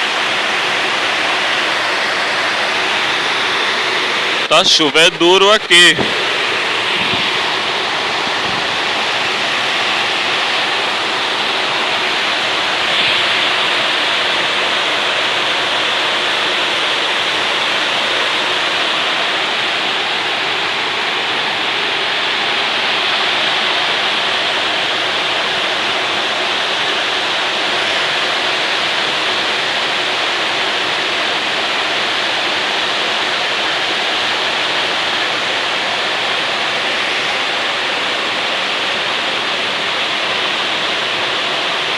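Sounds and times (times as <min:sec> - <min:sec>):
heavy rain: 0:00.2 - 0:18.5.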